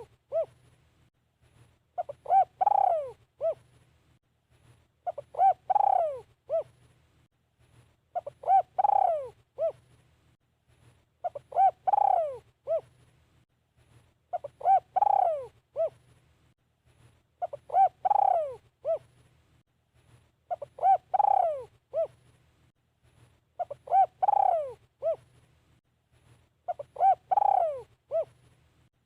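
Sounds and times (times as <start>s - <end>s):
dove cooing: 0.0s - 0.6s, 2.0s - 3.7s, 5.0s - 6.8s, 8.2s - 9.9s, 11.2s - 12.9s, 14.3s - 16.0s, 17.4s - 19.1s, 20.5s - 22.2s, 23.6s - 25.3s, 26.7s - 28.4s.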